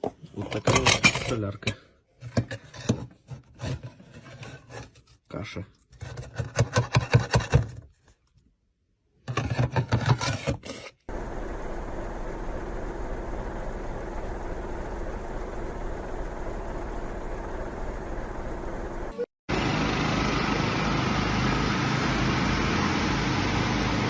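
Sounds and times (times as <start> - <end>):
machine running with low hum: 11.1 - 24.0.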